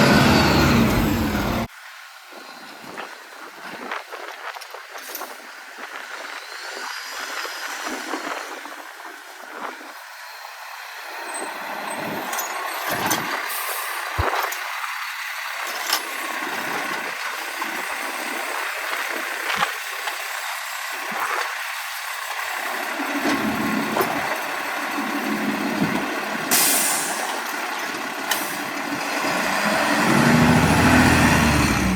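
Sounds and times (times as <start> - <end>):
garbage truck hiss: 0.0 - 1.7, 13.4 - 14.2, 26.5 - 27.5
air brakes: 12.1 - 14.0, 26.5 - 27.5.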